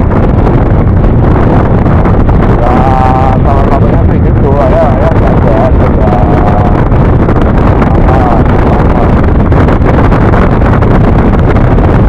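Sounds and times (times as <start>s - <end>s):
scooter engine and road noise: 0.0s - 12.0s
wind buffeting microphone: 0.0s - 12.0s.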